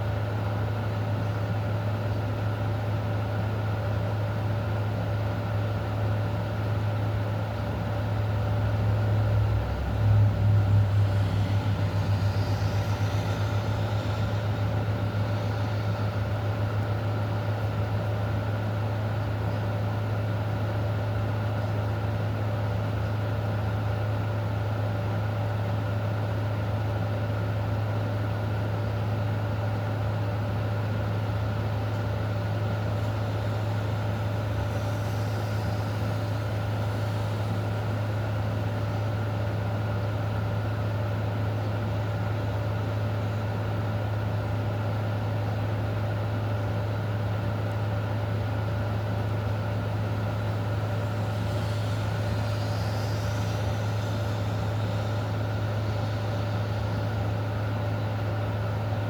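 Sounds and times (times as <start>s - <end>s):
low mechanical hum: 0.0s - 59.0s
faint hiss: 31.9s - 39.6s, 49.5s - 58.9s.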